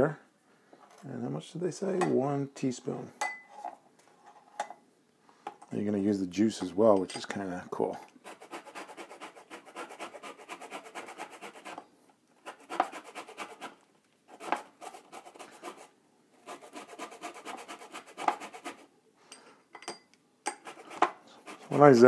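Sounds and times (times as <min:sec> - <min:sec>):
zester rasping orange peel: 0:08.2 - 0:11.8, 0:12.4 - 0:18.9, 0:20.6 - 0:22.0.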